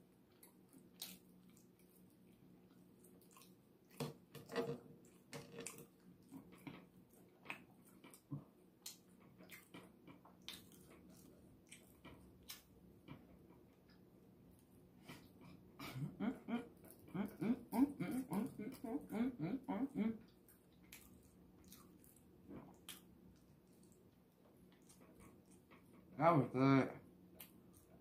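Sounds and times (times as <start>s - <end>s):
person chewing with wet smacks: 0.0s - 4.4s, 5.0s - 15.7s, 16.6s - 19.2s, 19.9s - 26.2s, 27.3s - 28.0s.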